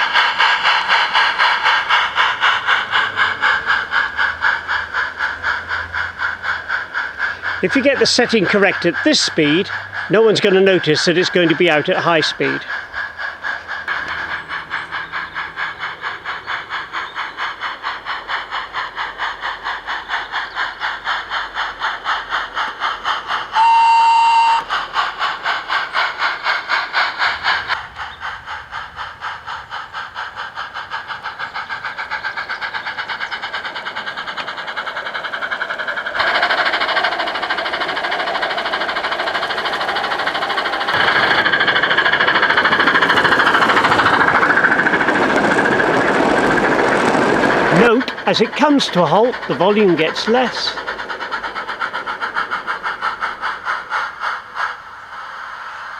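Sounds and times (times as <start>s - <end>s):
steam locomotive exhaust chuffs: 0.0s - 55.9s
steam whistle blast: 23.6s - 24.7s.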